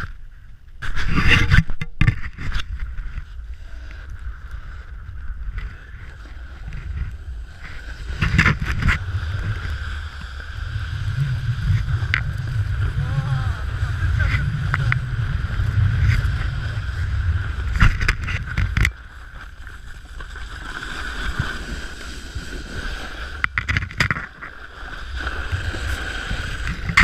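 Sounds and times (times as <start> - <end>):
wind rumble on microphone: 0.0 - 27.0
snowboard scraping snow: 0.8 - 27.0
sharp knocks and scrapes: 6.6 - 9.6, 17.7 - 19.0, 23.3 - 24.6.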